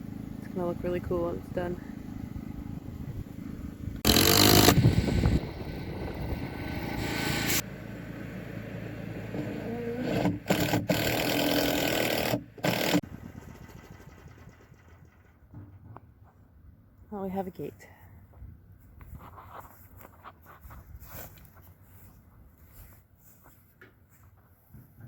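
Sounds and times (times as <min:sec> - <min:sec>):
engine running: 0:00.0 - 0:16.4.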